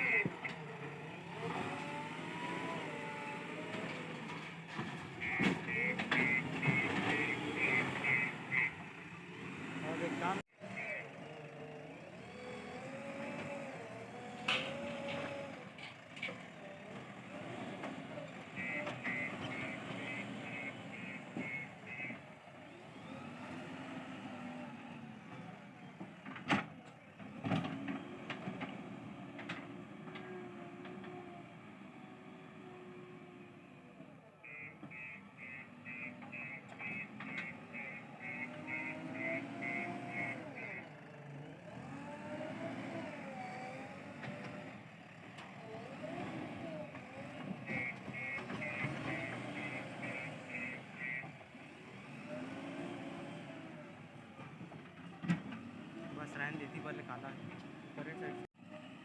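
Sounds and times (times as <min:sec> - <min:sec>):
diesel engine working: 0:00.0 - 0:59.0
reversing alarm beeping: 0:34.4 - 0:40.9.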